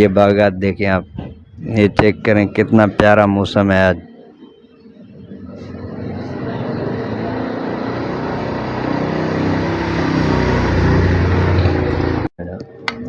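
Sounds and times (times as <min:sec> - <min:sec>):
vehicle passing on road: 0:04.0 - 0:12.3.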